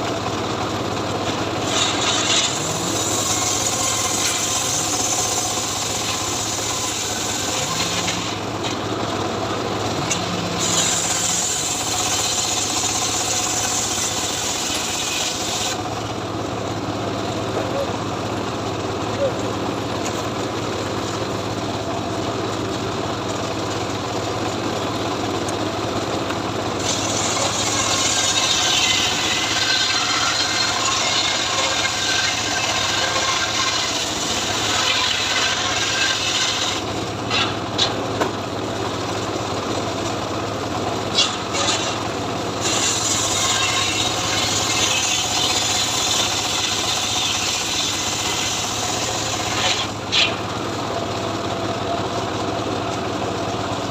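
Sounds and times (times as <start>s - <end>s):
saw engine running: 0.0s - 53.9s
saw blade hissing through wood: 1.6s - 8.5s, 10.0s - 15.8s, 26.8s - 37.6s, 42.6s - 50.4s.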